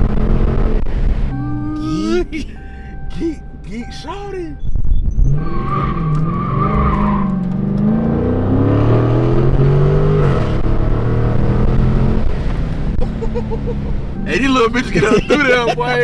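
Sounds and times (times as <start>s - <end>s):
car engine accelerating: 0.0s - 16.0s
tyres squealing: 13.4s - 16.0s.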